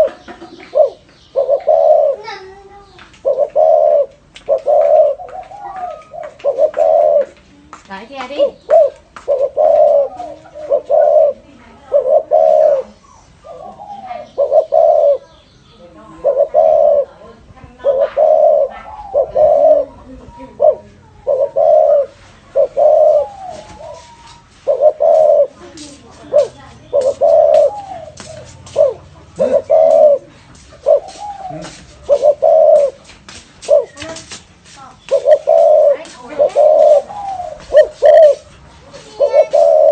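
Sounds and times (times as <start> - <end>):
dove cooing: 0.0 - 34.4, 35.0 - 39.9
faint gliding bird calls: 34.8 - 39.9.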